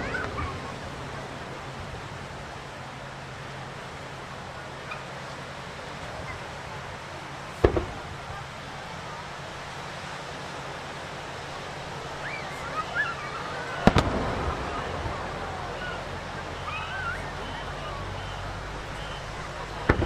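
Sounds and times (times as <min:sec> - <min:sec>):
crowd voices: 0:00.0 - 0:20.0
surf: 0:00.0 - 0:20.0
firework launch boom: 0:07.6 - 0:08.4, 0:13.8 - 0:15.4
firework double bang: 0:07.6 - 0:08.5, 0:13.8 - 0:15.4, 0:18.9 - 0:20.0.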